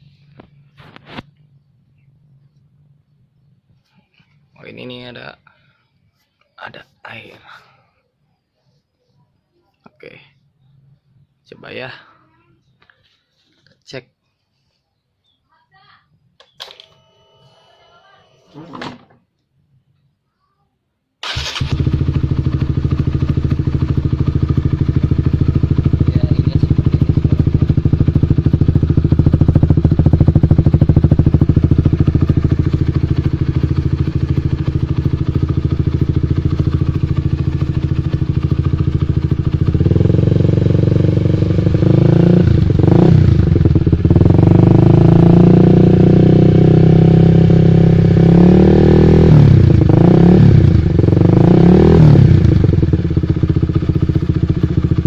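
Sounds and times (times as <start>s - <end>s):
motorcycle engine running loudly: 21.2s - 55.0s
motorcycle engine starting: 21.2s - 55.0s.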